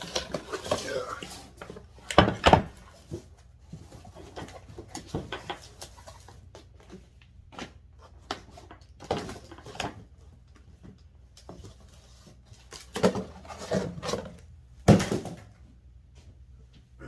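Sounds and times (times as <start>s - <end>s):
cardboard packaging rustling: 0.0s - 2.0s.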